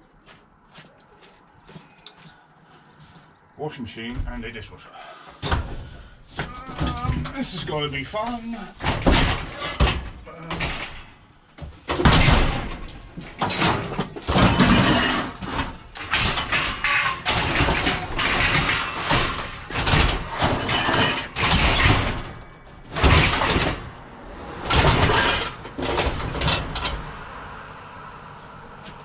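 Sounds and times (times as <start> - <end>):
metal appliance scraping and banging: 5.4 - 11.2, 11.8 - 27.3.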